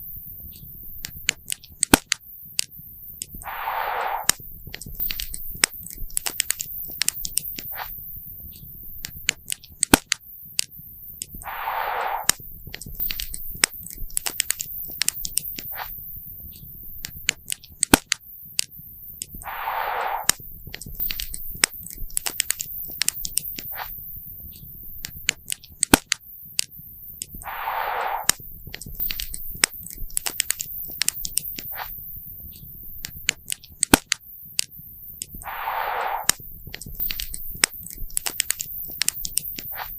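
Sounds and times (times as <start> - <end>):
short hiss: 3.4 - 4.4, 11.4 - 12.4, 19.4 - 20.4, 27.4 - 28.5, 35.4 - 38.0.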